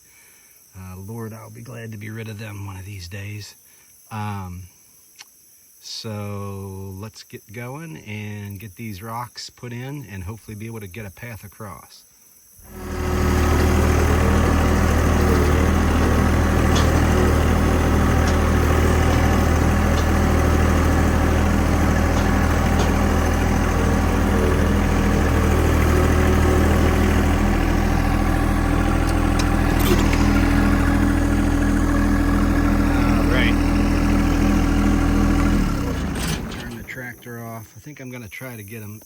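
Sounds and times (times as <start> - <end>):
vehicle engine running: 12.7 - 37.1.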